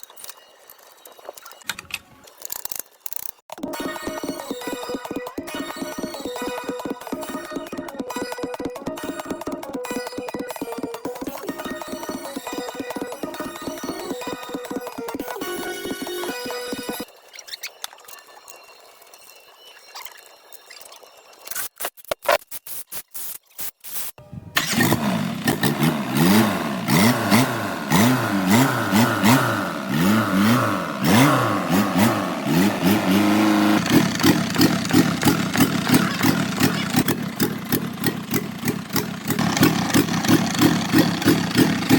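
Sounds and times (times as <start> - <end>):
truck engine starting and revving: 24.2 - 41.9.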